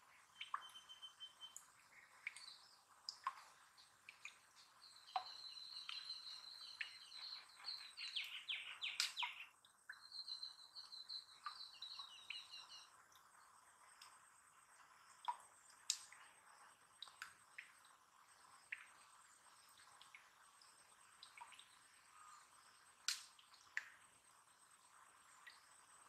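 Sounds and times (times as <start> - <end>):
small bird singing: 0.2 - 2.8, 3.8 - 12.9.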